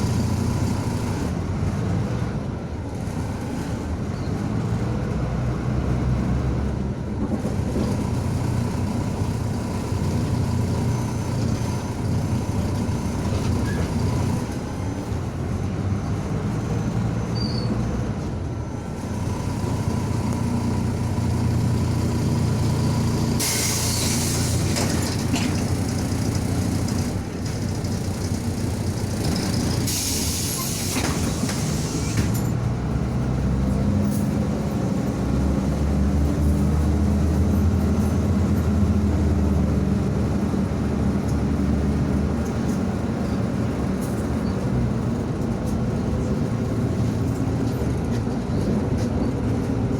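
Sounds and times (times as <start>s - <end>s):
bus engine and road drone: 0.0s - 49.9s
compressed air hiss: 23.4s - 24.6s.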